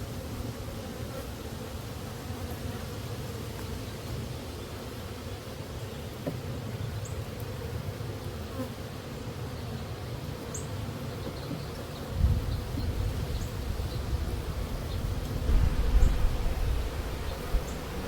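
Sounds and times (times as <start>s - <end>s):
honeybees buzzing: 0.0s - 18.0s
low rumble: 15.2s - 18.0s.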